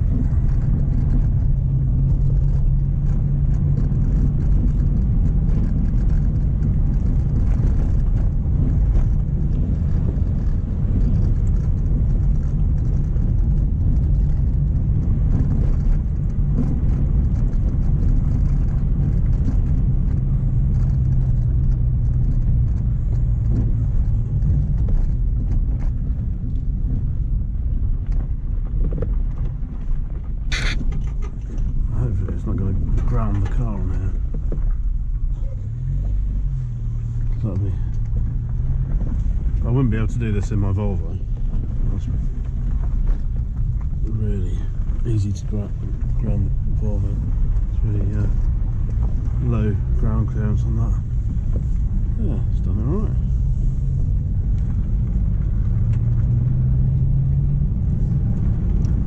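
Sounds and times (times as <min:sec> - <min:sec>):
car engine drone: 0:00.0 - 0:59.0
tyre and road noise: 0:00.0 - 0:59.0.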